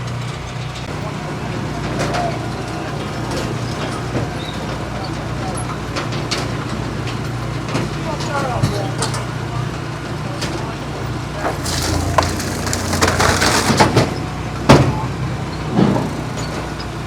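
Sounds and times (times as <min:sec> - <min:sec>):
log splitter engine running: 0:00.0 - 0:17.0
wood cracking and splitting: 0:11.4 - 0:14.9.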